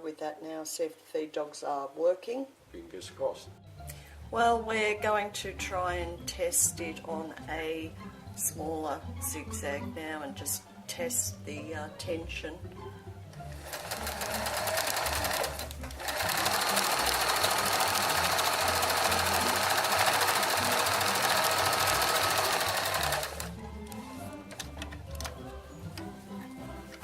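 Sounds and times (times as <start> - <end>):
sewing machine running: 13.5 - 23.5.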